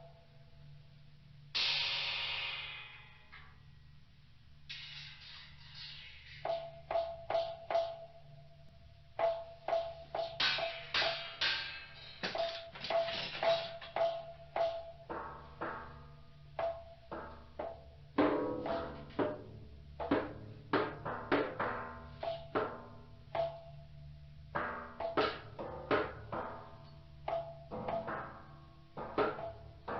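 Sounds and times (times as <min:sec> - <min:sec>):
sharp struck knocks ringing: 0:09.2 - 0:16.0.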